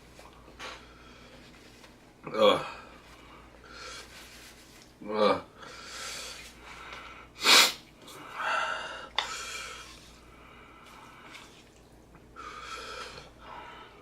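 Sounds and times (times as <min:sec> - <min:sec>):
man sniffing: 0:07.4 - 0:07.8
man breathing hard: 0:08.3 - 0:11.2, 0:12.4 - 0:14.0.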